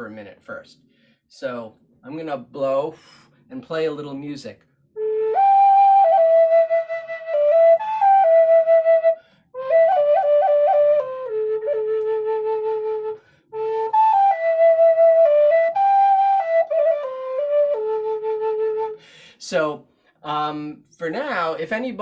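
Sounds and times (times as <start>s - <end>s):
flute melody: 4.9s - 19.1s.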